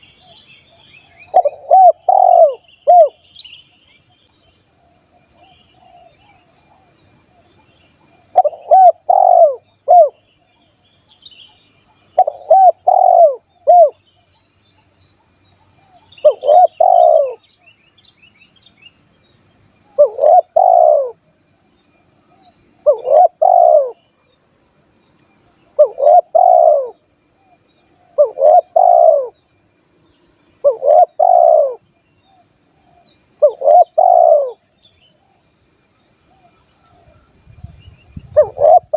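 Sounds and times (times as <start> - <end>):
dove cooing: 1.3 - 3.2, 8.3 - 10.2, 12.2 - 14.0, 15.9 - 17.4, 20.0 - 21.2, 22.8 - 24.0, 25.8 - 27.0, 28.0 - 29.4, 30.6 - 31.8, 32.9 - 34.6, 38.3 - 38.9.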